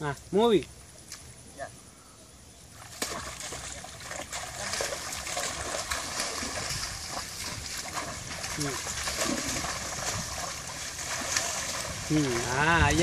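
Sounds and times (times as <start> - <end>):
water splashing and trickling: 2.7 - 13.0.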